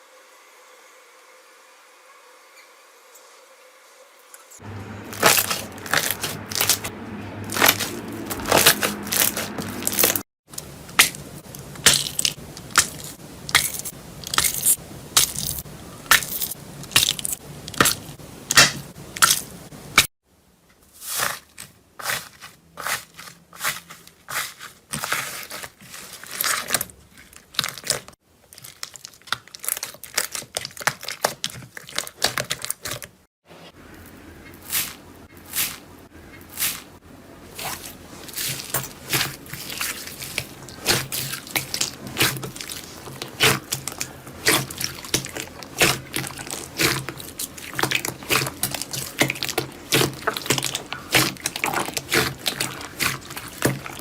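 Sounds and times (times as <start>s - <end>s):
slime crackling and popping: 5.1s - 6.9s, 7.5s - 20.1s, 26.1s - 33.0s, 37.6s - 54.0s.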